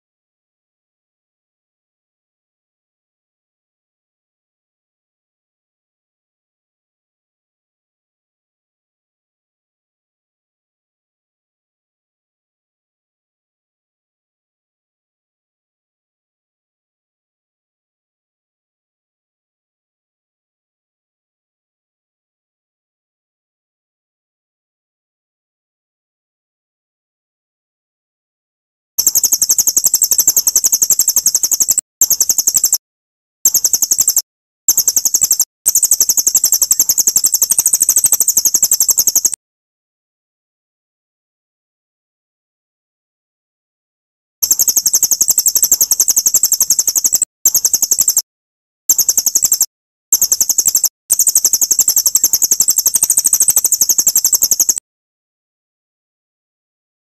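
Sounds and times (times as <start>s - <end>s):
songbird chipping trill: 29.0s - 32.8s, 33.5s - 39.4s, 44.4s - 48.2s, 48.9s - 54.8s.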